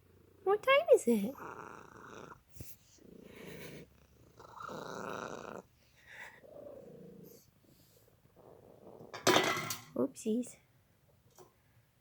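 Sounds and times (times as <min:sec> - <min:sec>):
cat purring: 0:00.0 - 0:09.3.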